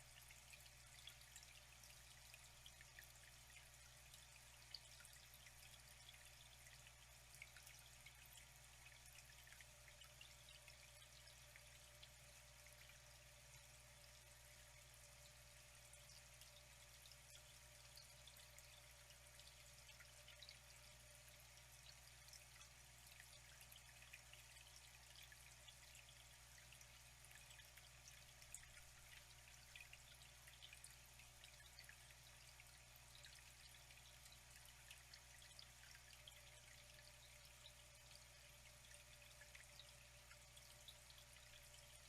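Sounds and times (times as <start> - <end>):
low steady hum: 0.0 - 42.0
water trickling and dripping: 0.0 - 42.0.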